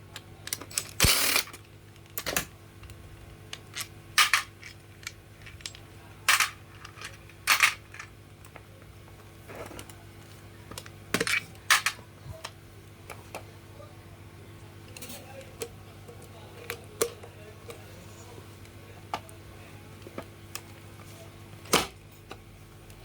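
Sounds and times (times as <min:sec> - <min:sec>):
steady low hum: 0:00.0 - 0:23.0
metal parts clinking on workbench: 0:03.8 - 0:08.1.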